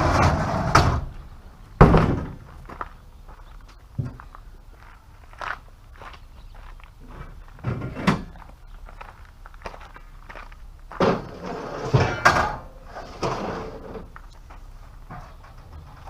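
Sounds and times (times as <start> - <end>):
knocks and thuds: 1.8 - 2.5.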